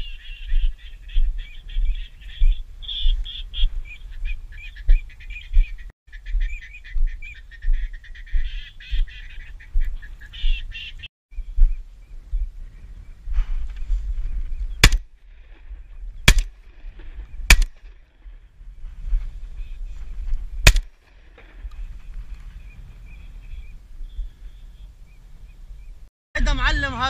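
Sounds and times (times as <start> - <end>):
birds chirping: 0.0 - 15.0, 21.6 - 26.1.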